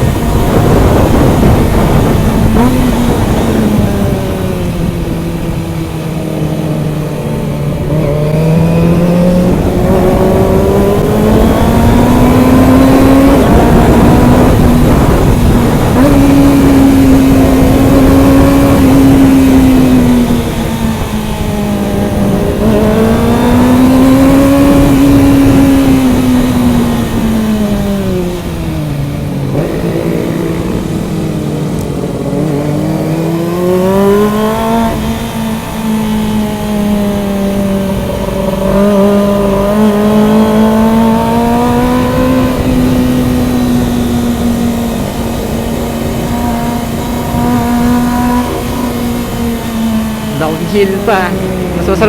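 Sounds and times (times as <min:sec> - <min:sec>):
motorcycle engine at high revs: 0:00.0 - 0:52.0.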